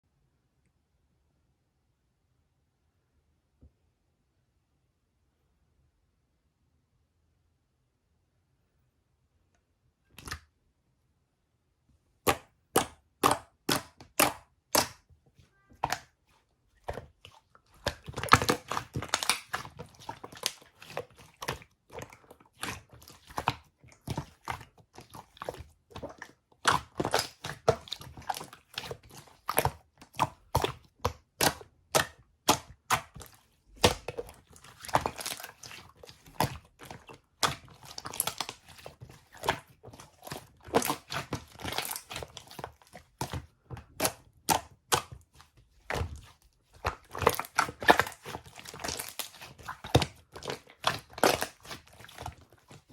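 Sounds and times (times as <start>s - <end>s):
crackling and popping: 16.8s - 52.9s.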